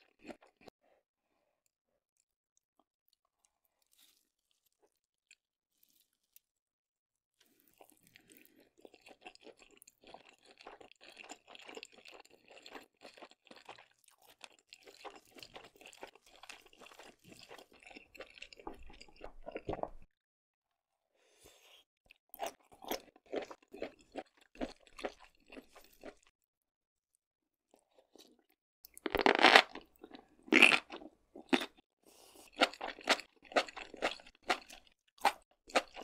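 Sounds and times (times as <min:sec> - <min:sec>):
person chewing wetly: 0:07.4 - 0:20.1, 0:22.1 - 0:26.4, 0:27.7 - 0:36.0.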